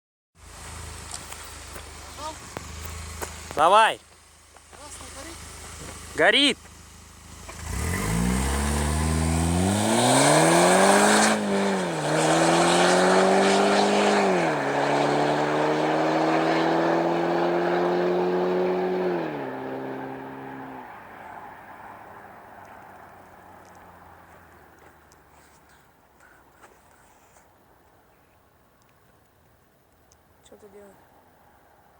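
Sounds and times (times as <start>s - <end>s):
car accelerating through gears: 7.4s - 22.0s.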